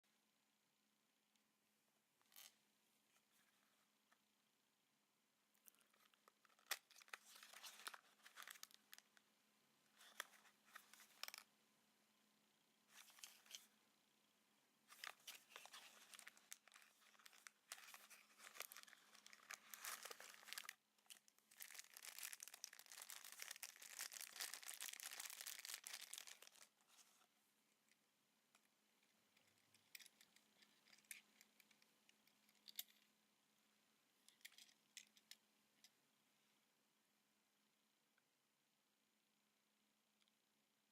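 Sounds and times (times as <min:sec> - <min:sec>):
packaging crinkling and tearing: 0:05.7 - 0:09.1, 0:14.9 - 0:26.8.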